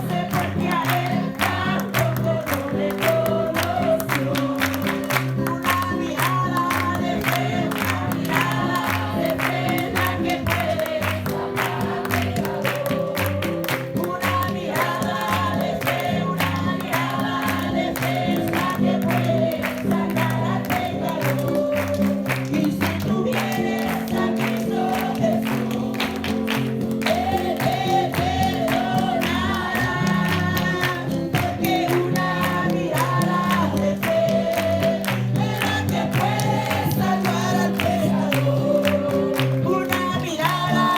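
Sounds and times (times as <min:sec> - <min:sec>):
group singing: 0:00.0 - 0:40.9.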